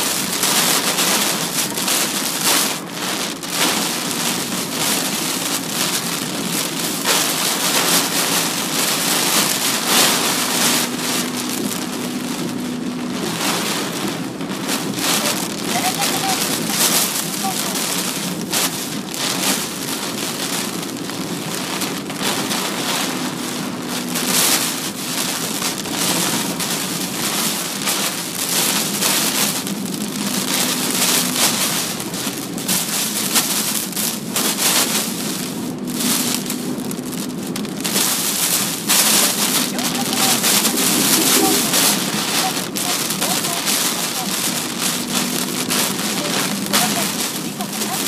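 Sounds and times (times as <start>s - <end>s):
rain hissing on car: 0.0s - 48.0s
wind gusts: 0.0s - 48.0s.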